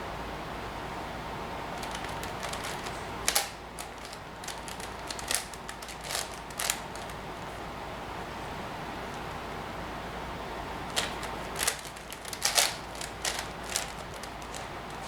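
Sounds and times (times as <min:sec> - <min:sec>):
puzzle cube clicking plastic: 0:01.8 - 0:07.2, 0:10.9 - 0:15.0.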